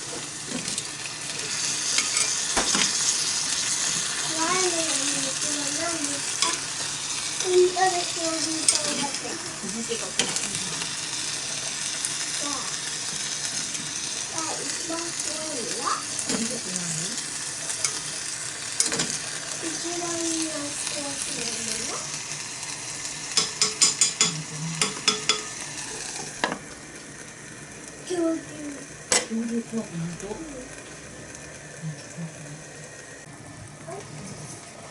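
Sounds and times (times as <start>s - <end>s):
stew sizzling in a pot: 0.0s - 34.9s
utensil clicking against pot: 23.4s - 25.5s.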